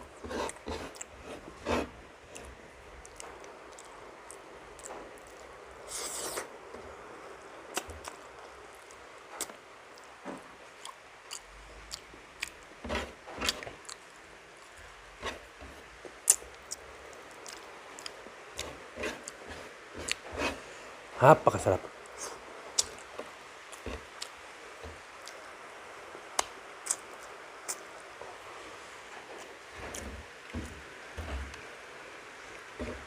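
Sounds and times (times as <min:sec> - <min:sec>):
person chewing with wet smacks: 0:00.5 - 0:01.1, 0:02.3 - 0:05.5, 0:07.7 - 0:10.1, 0:10.8 - 0:12.6, 0:13.4 - 0:14.8, 0:16.2 - 0:20.3, 0:22.8 - 0:25.5, 0:26.4 - 0:27.9.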